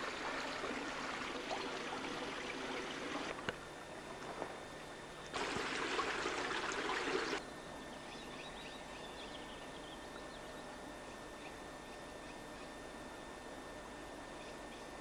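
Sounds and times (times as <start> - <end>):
water rushing and splashing: 0.0 - 3.4, 5.3 - 7.4
faint outdoor background: 0.0 - 15.0.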